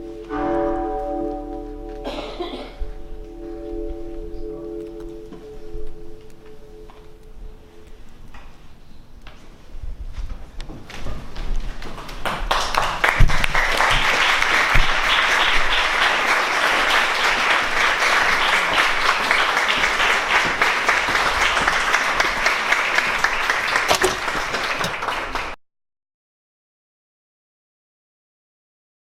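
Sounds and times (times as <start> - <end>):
audience applauding: 11.8 - 25.6.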